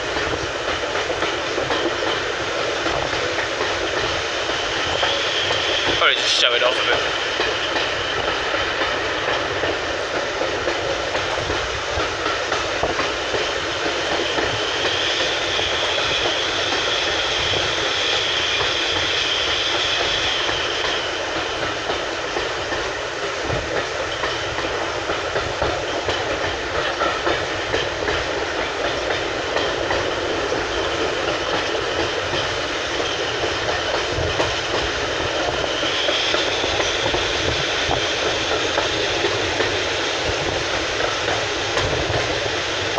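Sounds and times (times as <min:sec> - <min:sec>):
steam hiss: 0:00.0 - 0:42.9
train coach rumbling and rattling: 0:00.0 - 0:42.9.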